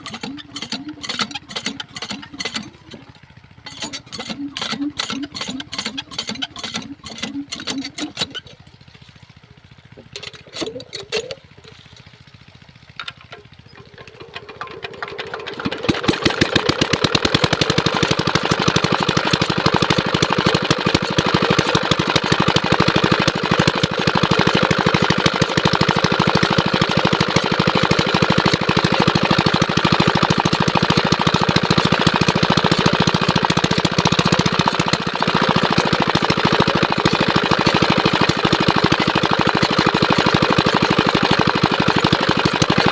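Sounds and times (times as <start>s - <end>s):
engine starting knocks: 0.0s - 8.6s
diesel engine running: 0.0s - 42.9s.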